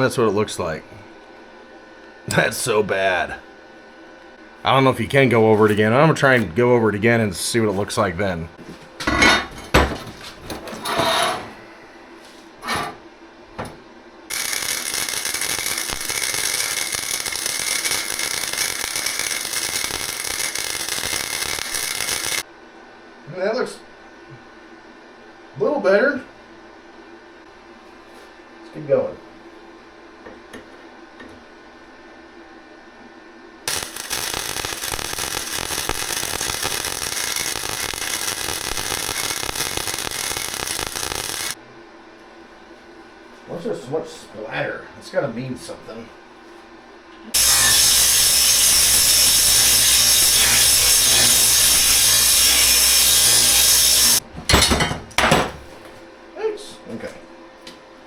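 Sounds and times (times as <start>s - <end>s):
welder arc crackling: 14.3s - 22.5s, 33.7s - 41.6s, 47.4s - 54.2s.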